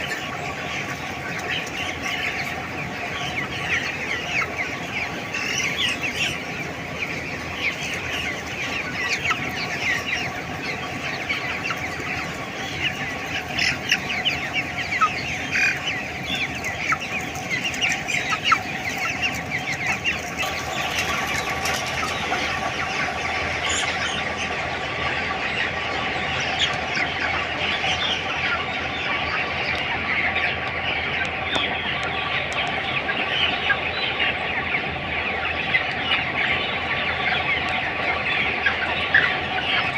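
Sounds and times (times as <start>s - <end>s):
chickens chirping and clucking: 0.0s - 39.9s.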